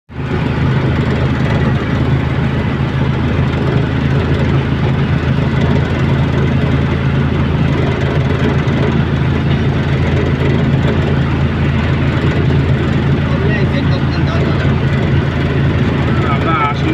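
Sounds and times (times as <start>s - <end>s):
engine drone: 0.1s - 16.9s.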